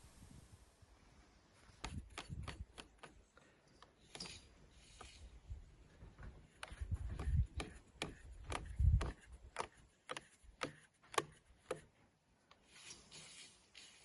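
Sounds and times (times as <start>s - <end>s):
sharp clicks: 1.8s - 4.4s.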